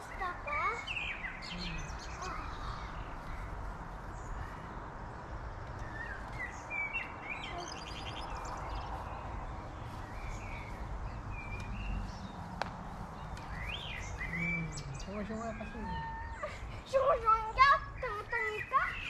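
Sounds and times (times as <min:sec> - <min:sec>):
birds chirping: 0:00.0 - 0:19.0
outdoor background noise: 0:00.0 - 0:19.0.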